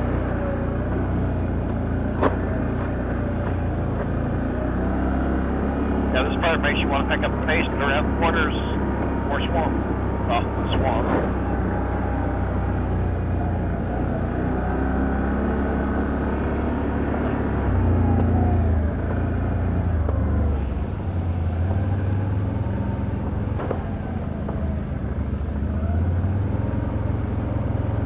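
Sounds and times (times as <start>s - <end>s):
atv engine revving: 0.0s - 28.0s.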